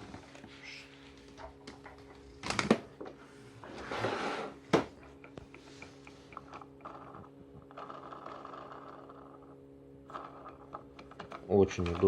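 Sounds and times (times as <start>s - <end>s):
faint steady hum: 0.0s - 12.0s
plastic parts clattering: 10.7s - 12.0s.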